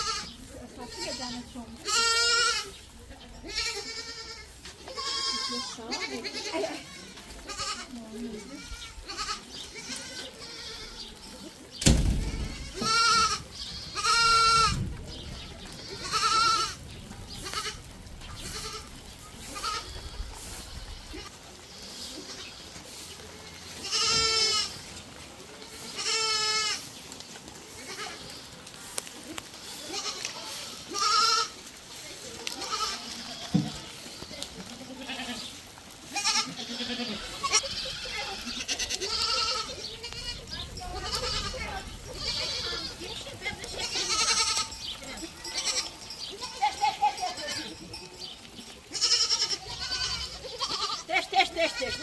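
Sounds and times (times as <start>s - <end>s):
goats bleating: 0.0s - 27.0s, 27.6s - 52.0s.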